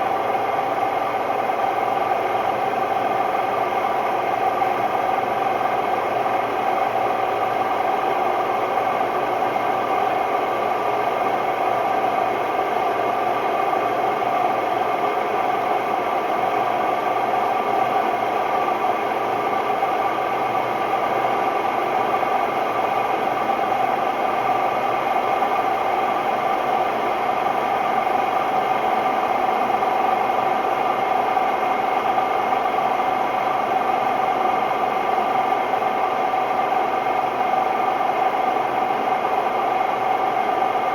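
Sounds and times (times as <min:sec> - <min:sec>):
washing machine spinning: 0:00.0 - 0:40.9.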